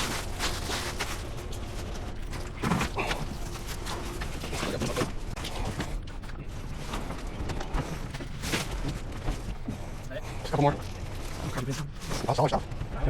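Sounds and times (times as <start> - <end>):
bags thumping and knocking: 0.0 - 6.0
rustling: 0.0 - 12.9.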